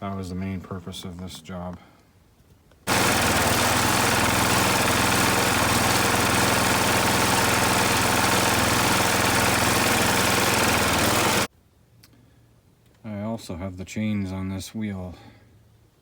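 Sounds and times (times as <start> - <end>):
garden tractor engine running: 2.9 - 11.5.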